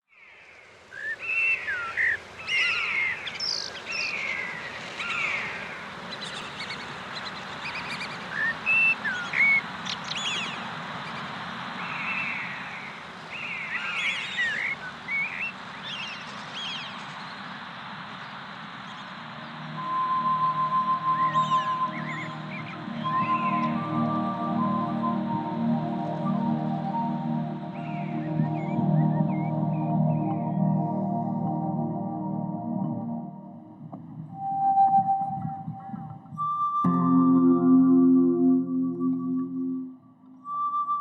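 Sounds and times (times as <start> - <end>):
birds singing and calling: 1.0 - 17.4, 18.9 - 31.0
background hiss: 9.8 - 32.5
held note: 36.8 - 40.4.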